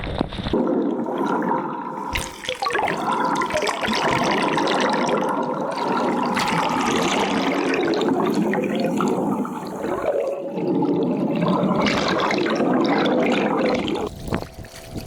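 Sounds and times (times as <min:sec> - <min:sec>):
water rushing and splashing: 0:00.6 - 0:15.0.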